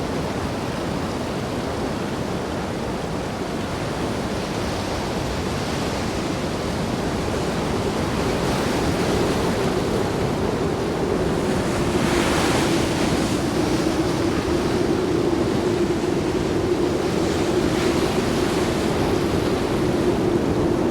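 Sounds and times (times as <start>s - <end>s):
wind buffeting microphone: 0.0s - 20.9s
heavy surf breaking: 7.0s - 20.9s.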